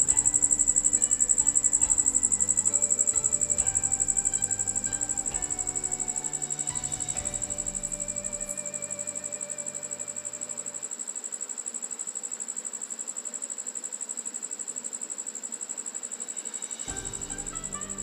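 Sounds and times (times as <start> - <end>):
faint background music: 0.0 - 11.1, 16.1 - 18.0
insect trill: 0.0 - 18.0.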